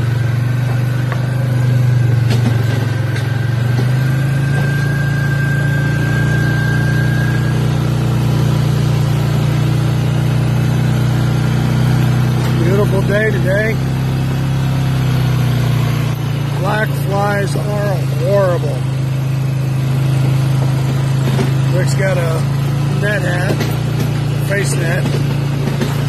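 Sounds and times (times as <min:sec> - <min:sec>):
vehicle engine running at low revs: 0:00.0 - 0:26.0.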